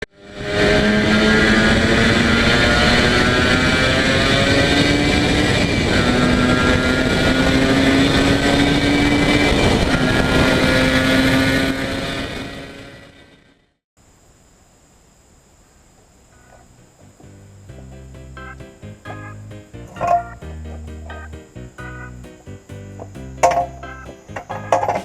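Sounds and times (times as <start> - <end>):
two-stroke engine running: 19.9 - 21.3.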